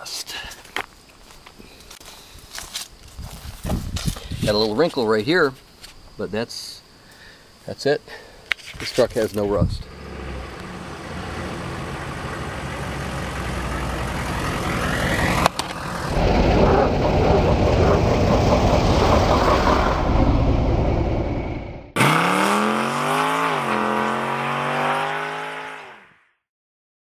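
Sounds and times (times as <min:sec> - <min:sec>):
diesel truck running: 0:09.8 - 0:21.9.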